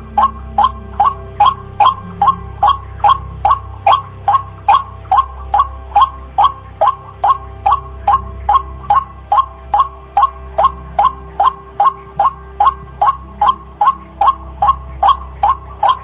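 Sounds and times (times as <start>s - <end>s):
waterhen calling rapid notes: 0.0s - 16.0s.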